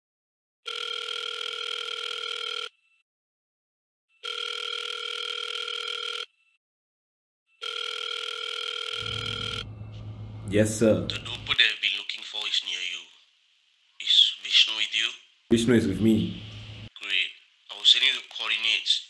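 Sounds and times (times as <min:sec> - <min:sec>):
telephone ringing: 0:00.7 - 0:02.7, 0:04.2 - 0:06.3, 0:07.6 - 0:11.6.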